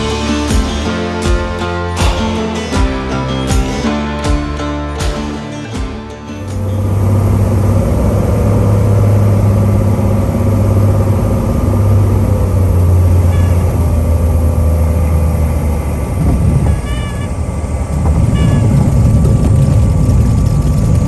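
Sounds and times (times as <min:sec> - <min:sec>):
piston aircraft engine humming: 0:05.2 - 0:21.0.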